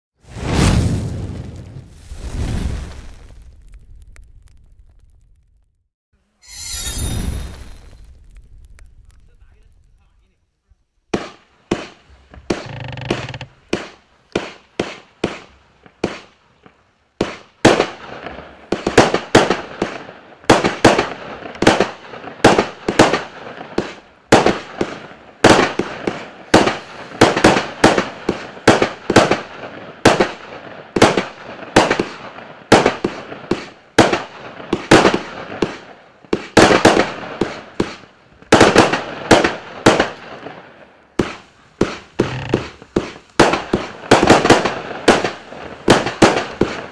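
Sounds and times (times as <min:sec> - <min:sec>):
fireworks hiss: 0:00.2 - 0:03.6, 0:06.4 - 0:10.3, 0:22.4 - 0:30.4, 0:41.2 - 0:46.9
fireworks bangs: 0:00.2 - 0:05.4, 0:06.4 - 0:10.4, 0:11.1 - 0:46.9.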